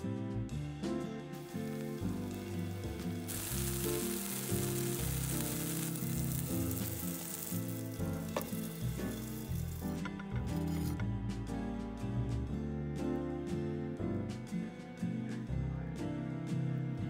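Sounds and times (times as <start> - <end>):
background music: 0.0 - 17.0
patty sizzling in a frying pan: 1.4 - 10.9.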